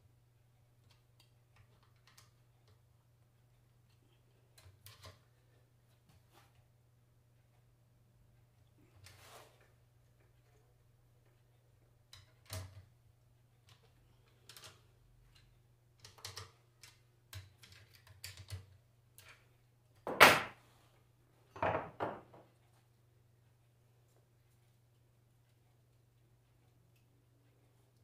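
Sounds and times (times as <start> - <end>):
tools clicking and knocking: 13.7 - 19.4.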